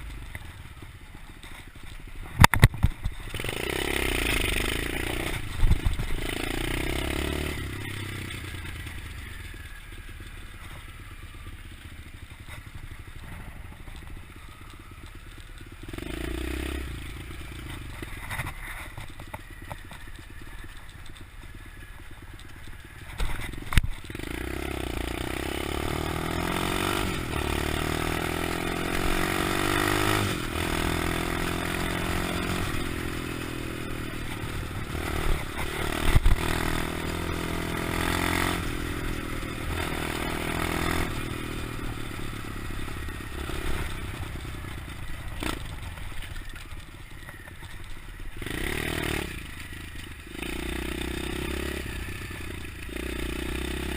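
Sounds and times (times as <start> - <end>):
pit bike engine revving: 3.1 - 10.6, 15.3 - 18.6, 22.4 - 46.9, 47.5 - 53.9.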